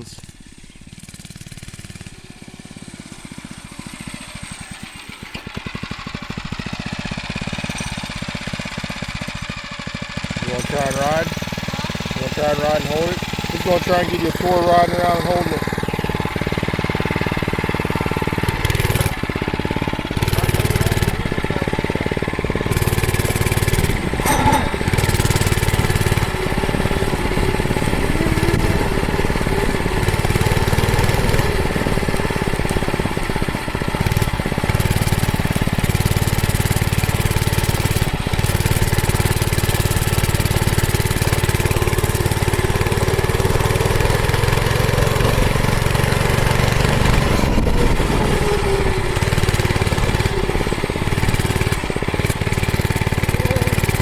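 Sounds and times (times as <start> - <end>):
small motorbike engine revving: 0.0 - 54.0.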